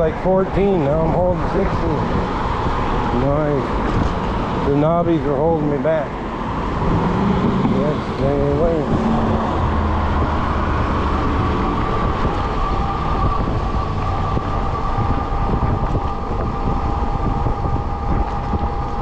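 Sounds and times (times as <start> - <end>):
lower whine: 0.0 - 19.0
tires humming on road: 0.0 - 19.0
wind buffeting microphone: 0.0 - 19.0
electric motor whine: 5.8 - 19.0.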